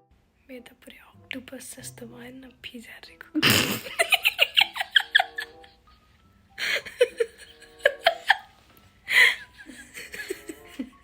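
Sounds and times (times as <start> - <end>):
person laughing: 3.4 - 5.8, 6.6 - 8.5, 9.1 - 11.0.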